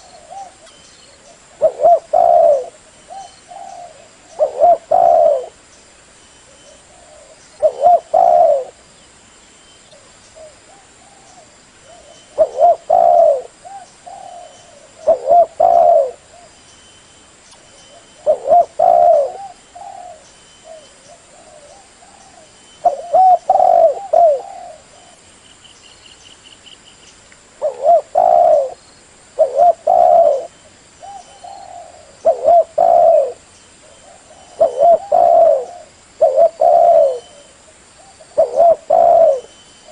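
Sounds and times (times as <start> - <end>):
dove cooing: 0.0 - 5.6, 6.5 - 8.8, 10.0 - 16.6, 17.9 - 25.2, 27.6 - 28.8, 29.4 - 39.9.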